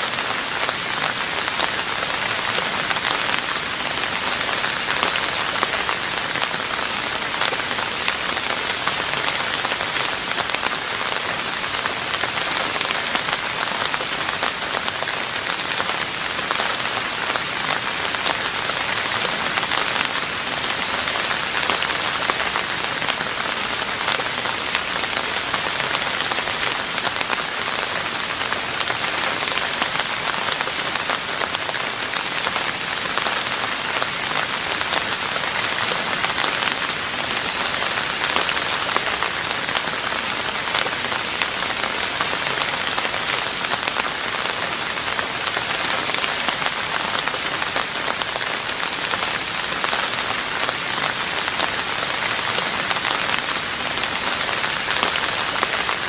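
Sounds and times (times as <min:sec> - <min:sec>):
rain falling on a roof: 0:00.0 - 0:56.0.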